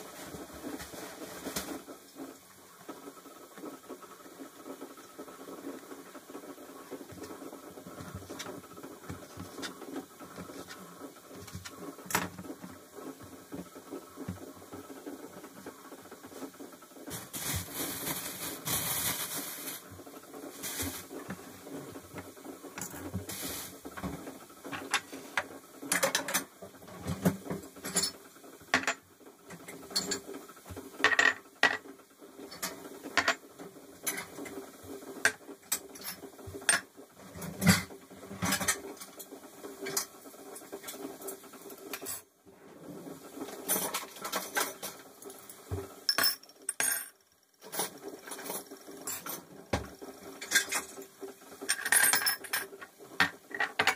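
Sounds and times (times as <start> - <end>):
hissing noise: 0.0 - 25.8
household objects clicking and knocking: 0.1 - 42.2, 43.4 - 53.9
objects clattering: 4.6 - 33.4, 43.4 - 51.0, 51.6 - 53.9.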